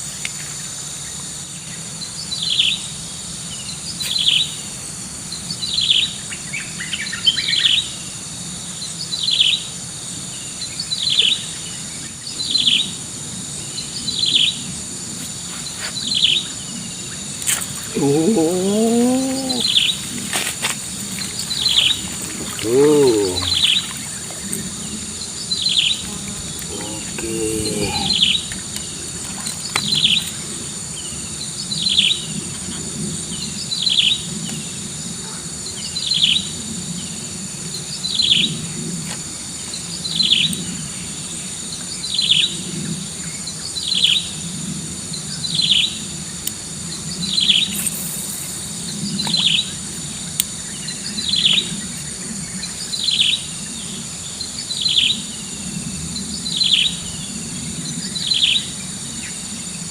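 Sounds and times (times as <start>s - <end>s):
high-pitched insect drone: 12.4s - 29.0s, 47.3s - 51.4s.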